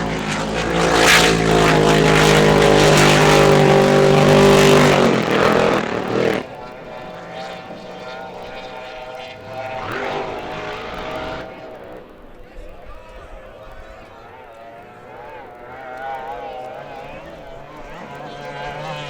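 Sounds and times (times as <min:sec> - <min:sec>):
distant engine sound: 0:00.0 - 0:19.0
racing boat engines: 0:00.0 - 0:19.0.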